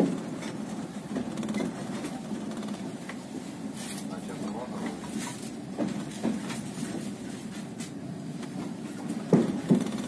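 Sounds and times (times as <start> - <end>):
train carriage rumbling: 0.0 - 10.0
train wheels knocking: 9.3 - 10.0.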